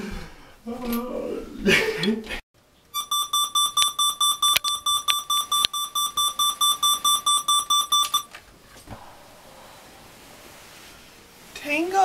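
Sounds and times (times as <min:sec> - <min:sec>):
alarm clock beeping rapidly: 0:03.0 - 0:08.3.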